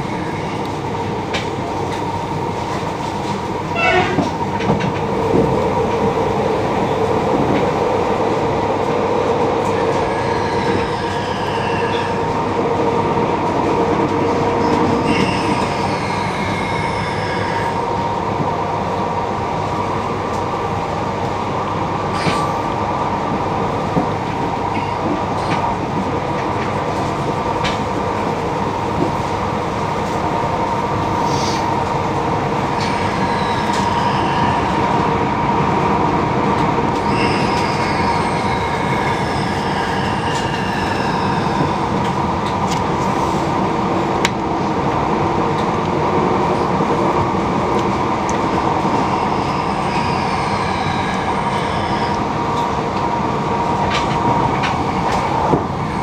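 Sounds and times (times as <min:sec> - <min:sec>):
train rumble inside carriage: 0:00.0 - 0:56.0
high-pitched wheel squeals: 0:09.8 - 0:12.3, 0:15.0 - 0:17.8, 0:32.7 - 0:35.0, 0:37.0 - 0:41.8, 0:49.0 - 0:52.3.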